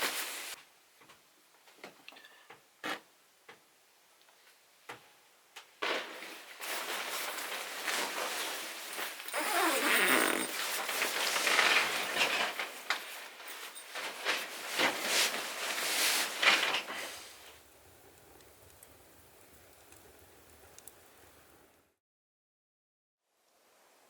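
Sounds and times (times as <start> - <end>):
gear rustling and scraping: 6.7 - 17.2
zipper sweeps: 9.0 - 12.2.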